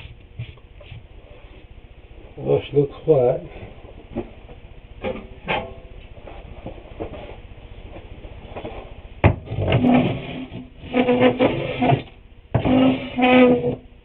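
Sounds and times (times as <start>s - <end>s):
wood scraping and rubbing: 9.6s - 13.8s.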